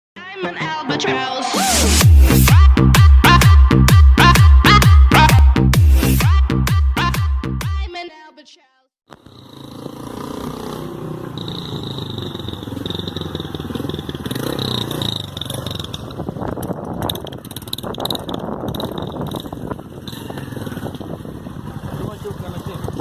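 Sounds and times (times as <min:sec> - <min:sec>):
motorcycle engine revving: 0:09.1 - 0:23.0.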